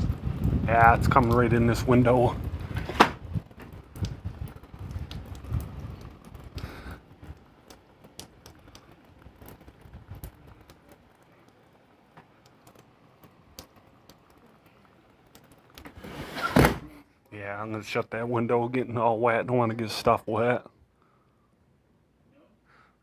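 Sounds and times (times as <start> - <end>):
raindrops ticking on window frame: 0.0 - 16.0
faint hiss of rain: 0.0 - 23.0.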